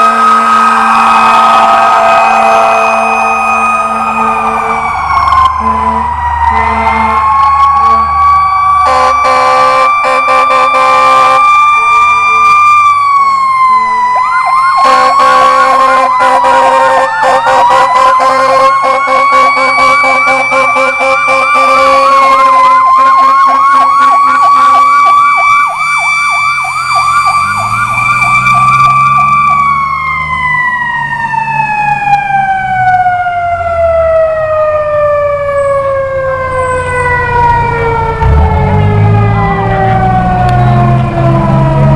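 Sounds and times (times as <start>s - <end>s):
horn blasts: 0.0s - 8.2s, 8.8s - 12.5s, 14.8s - 25.0s
siren wailing: 0.0s - 41.9s
warbling siren yelp: 0.0s - 41.9s.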